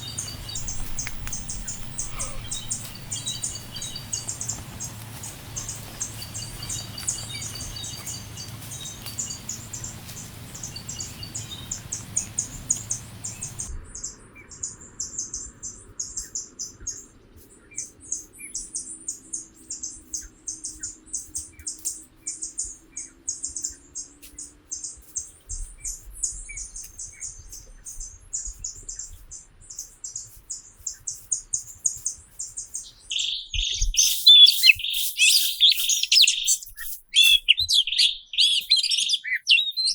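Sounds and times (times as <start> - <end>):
lower bird calls: 0.0 - 15.4, 32.5 - 39.9
small birds chirping: 0.0 - 39.9.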